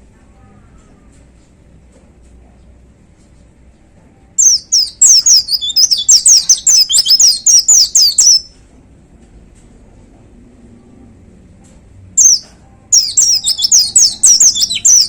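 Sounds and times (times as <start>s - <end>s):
songbird singing high notes: 4.4s - 8.5s, 12.2s - 15.0s.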